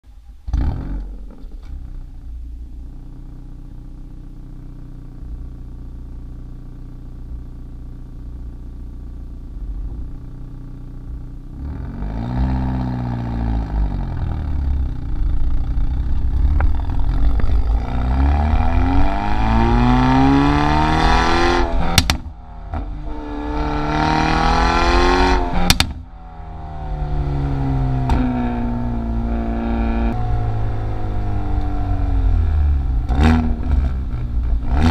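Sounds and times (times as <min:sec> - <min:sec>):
car engine idling and revving: 0:00.0 - 0:34.9
exhaust pops and cracks: 0:21.9 - 0:22.4, 0:25.6 - 0:26.1.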